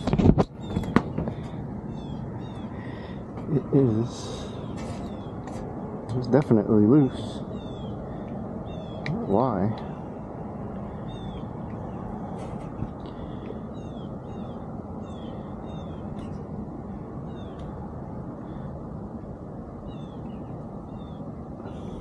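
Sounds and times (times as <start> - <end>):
low background rumble: 0.0 - 22.0
bird chirping: 0.5 - 1.2, 1.9 - 5.5, 7.0 - 10.2, 10.9 - 16.3, 17.2 - 17.7, 19.8 - 22.0.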